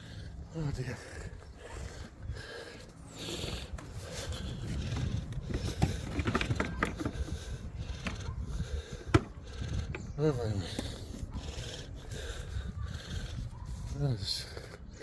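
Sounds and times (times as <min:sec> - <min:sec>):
small clicks and scrapes: 0:04.9 - 0:07.4.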